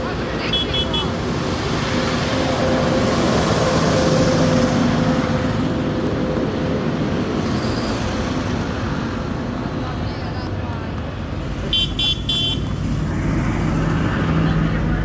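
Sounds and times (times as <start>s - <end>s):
rumble of engines: 0.0s - 15.0s
tractor engine passing by: 11.3s - 15.0s.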